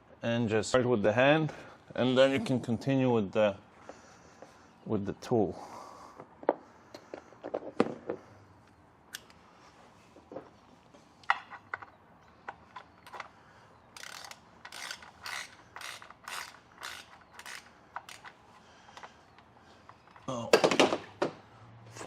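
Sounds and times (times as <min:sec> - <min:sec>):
ratchet wrench strokes: 0:14.0 - 0:18.4.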